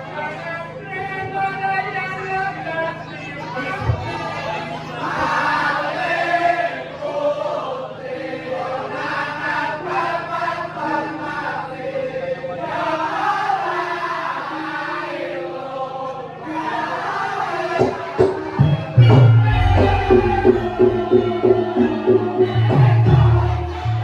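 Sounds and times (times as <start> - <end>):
group of voices chanting: 3.0 - 24.0
steady low hum: 18.5 - 24.0.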